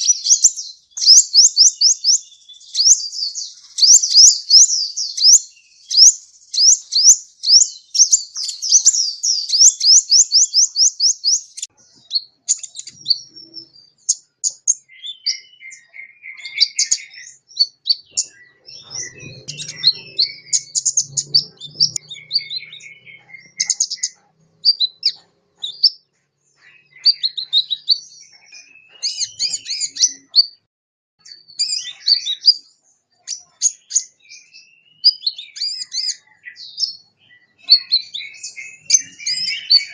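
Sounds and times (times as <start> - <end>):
bird trilling and chirping: 0.0 - 39.9.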